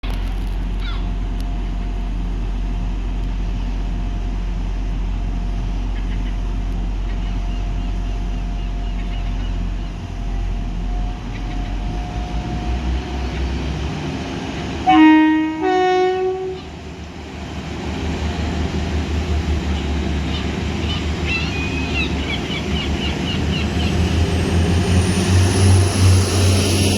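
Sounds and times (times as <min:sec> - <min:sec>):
diesel train rumbling: 0:00.0 - 0:26.9
two-tone train horn: 0:14.8 - 0:16.7.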